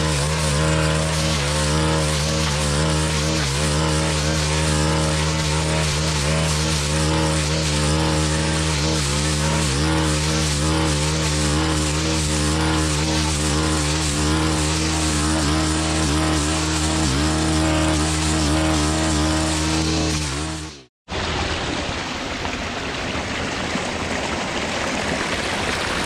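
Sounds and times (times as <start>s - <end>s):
blade cutting grass: 0.0s - 20.9s
brush cutter engine at full throttle: 0.0s - 20.9s.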